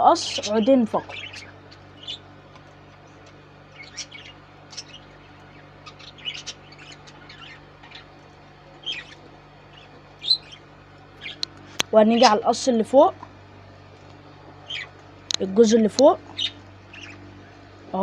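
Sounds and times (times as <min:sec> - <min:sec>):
steady low hum: 0:00.0 - 0:18.0
budgerigars chirping: 0:00.2 - 0:02.3, 0:03.7 - 0:08.2, 0:08.8 - 0:11.4, 0:14.6 - 0:15.0, 0:16.3 - 0:17.2.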